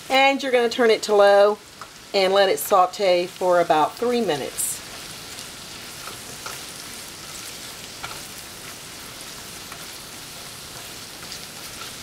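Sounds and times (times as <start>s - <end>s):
mushrooms sizzling in butter: 0.0s - 12.0s
utensil clicking against pan: 7.9s - 8.3s.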